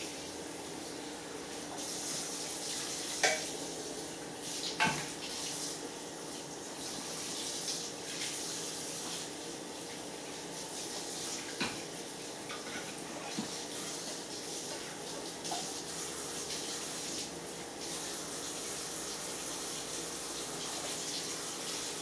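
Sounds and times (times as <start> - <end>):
tap running into sink: 3.2 - 3.5.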